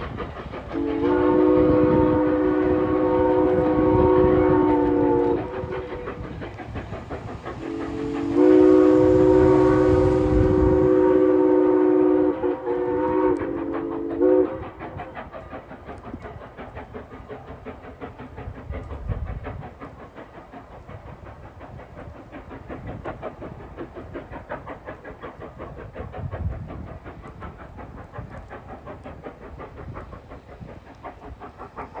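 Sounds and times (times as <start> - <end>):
train wheels clicking on rail joints: 0.0 - 32.0
steam locomotive whistle chord: 0.8 - 6.2, 7.6 - 14.7.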